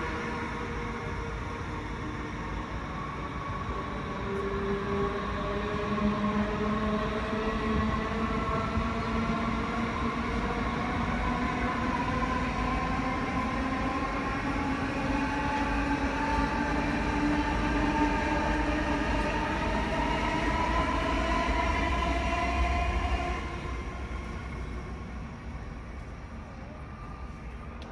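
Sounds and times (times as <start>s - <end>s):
electric train whine: 0.0s - 27.9s
low train rumble: 0.0s - 27.9s.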